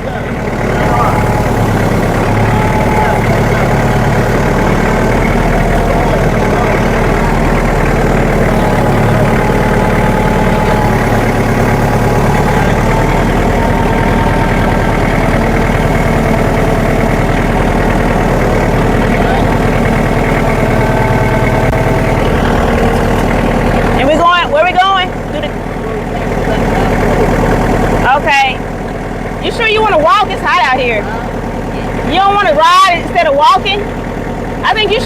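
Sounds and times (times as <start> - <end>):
engine idling: 0.0 - 35.0.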